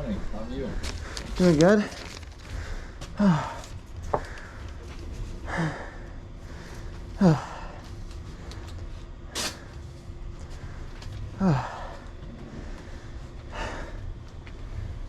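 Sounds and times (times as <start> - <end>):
low steady rumble: 0.0 - 15.0
person sighing murmurs: 3.2 - 3.7, 7.2 - 7.8, 11.4 - 12.0.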